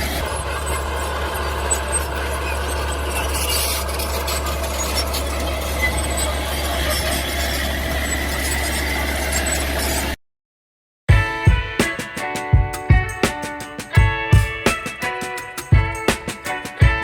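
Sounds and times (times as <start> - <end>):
metallic squealing and rubbing: 0.0 - 10.2.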